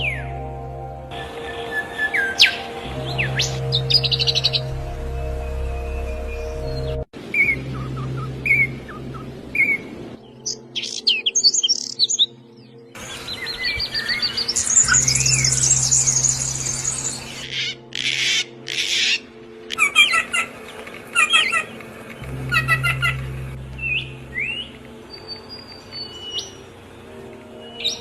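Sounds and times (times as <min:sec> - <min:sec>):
low hum: 0:00.0 - 0:10.4, 0:14.2 - 0:17.5, 0:21.8 - 0:27.6
songbirds chirping and singing: 0:00.0 - 0:28.0.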